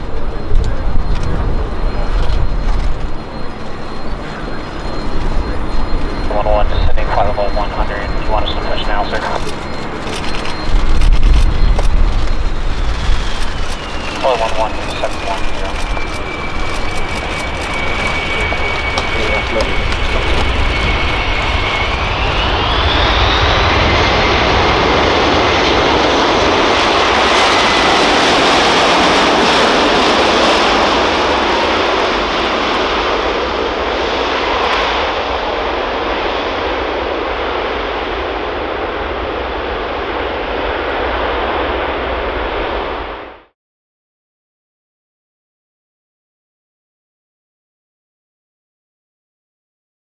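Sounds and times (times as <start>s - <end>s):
jet engine whine: 0.0s - 43.6s
jet engines roaring: 0.0s - 43.6s.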